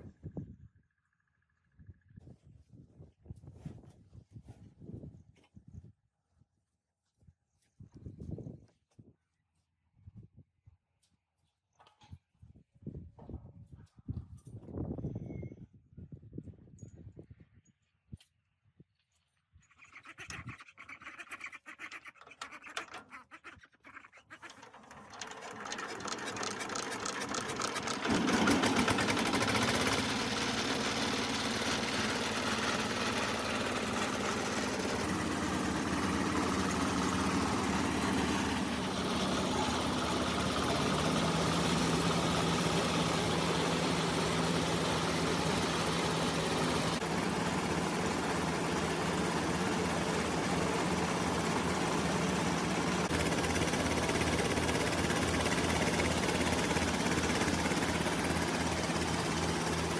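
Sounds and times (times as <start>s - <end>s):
diesel engine starting and running: 24.1s - 59.9s.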